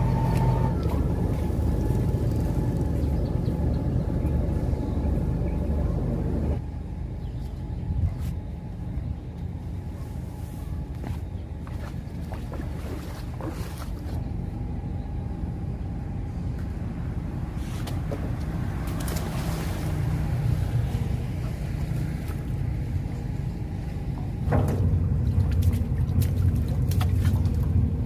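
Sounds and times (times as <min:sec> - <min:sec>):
boat engine droning: 0:00.0 - 0:28.0.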